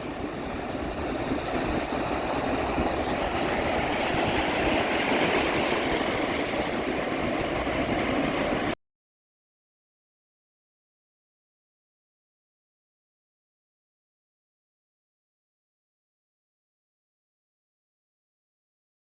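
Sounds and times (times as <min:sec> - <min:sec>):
waves breaking: 0:00.0 - 0:08.8.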